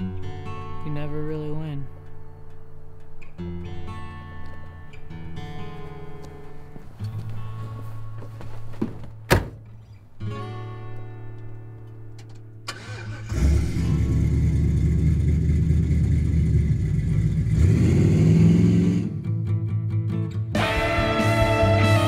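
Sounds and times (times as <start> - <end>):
acoustic guitar music: 0.0 - 16.1, 19.0 - 22.0
car door shutting: 8.8 - 9.8
car engine rumbling and revving: 12.7 - 19.5.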